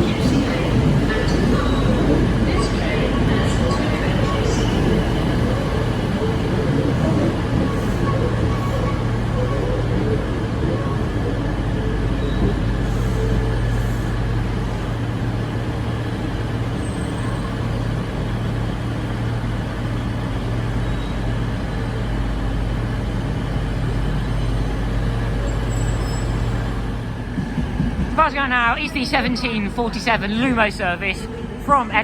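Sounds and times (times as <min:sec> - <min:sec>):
diesel train engine idling: 0:11.3 - 0:32.0.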